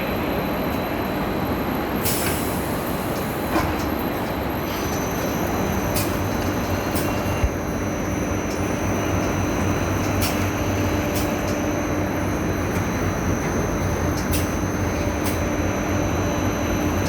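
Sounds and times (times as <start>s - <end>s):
pipe-cutting machine running: 4.6s - 17.0s.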